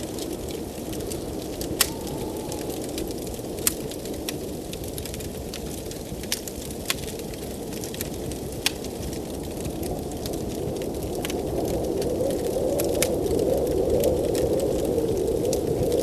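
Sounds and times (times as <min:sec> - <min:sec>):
blizzard wind: 0:00.0 - 0:16.0
wood fire crackling and popping: 0:00.0 - 0:16.0.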